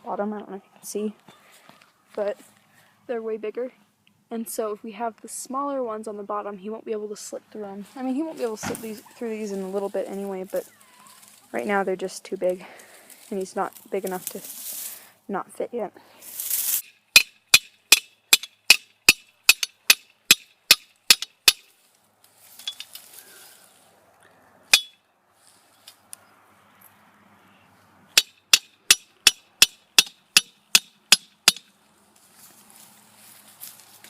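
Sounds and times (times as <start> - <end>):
hammer striking metal: 17.2 - 21.7, 24.7 - 25.0, 28.2 - 31.7.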